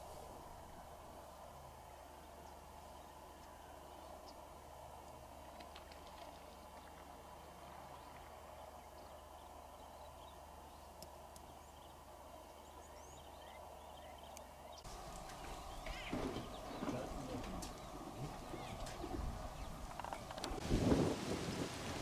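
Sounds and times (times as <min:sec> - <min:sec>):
birds chirping: 0:00.0 - 0:20.6
lower bird calls: 0:11.5 - 0:20.6.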